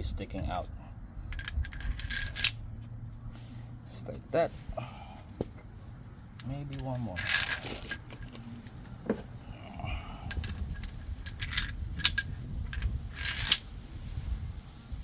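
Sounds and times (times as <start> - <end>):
metal washers clinking: 1.3 - 2.7, 6.4 - 8.8, 10.0 - 13.7.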